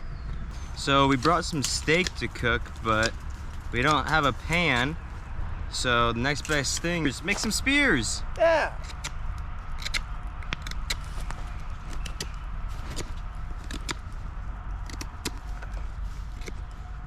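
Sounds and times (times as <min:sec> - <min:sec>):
low fire rumble: 0:00.0 - 0:17.0
campfire crackling and popping: 0:00.6 - 0:08.1.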